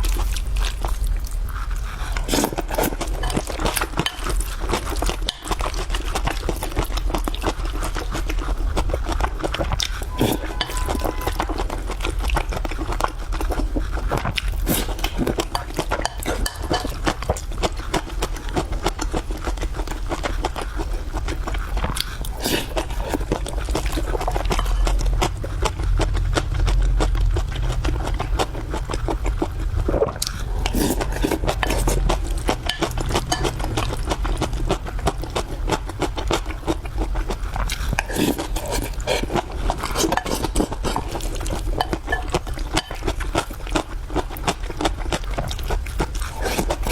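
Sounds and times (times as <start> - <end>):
person chewing and eating: 0.0 - 46.9.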